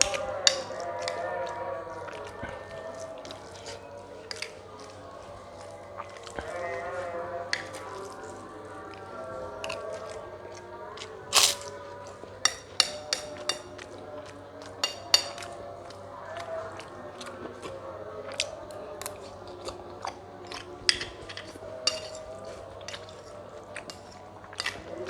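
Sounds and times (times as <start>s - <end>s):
crunching crisp food: 11.2s - 11.9s.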